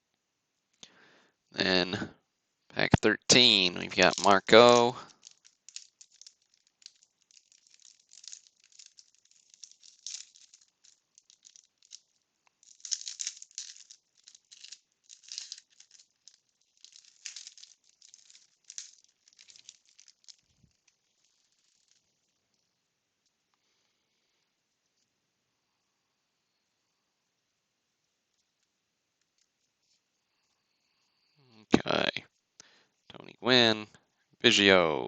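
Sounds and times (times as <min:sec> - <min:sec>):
wax paper wrapper crinkling: 0:03.4 - 0:23.3.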